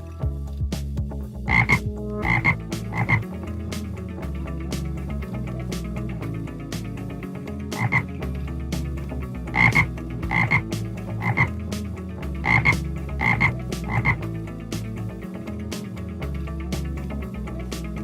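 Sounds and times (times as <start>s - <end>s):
frog croaking: 1.5s - 3.3s, 7.7s - 8.1s, 9.5s - 11.6s, 12.4s - 14.2s.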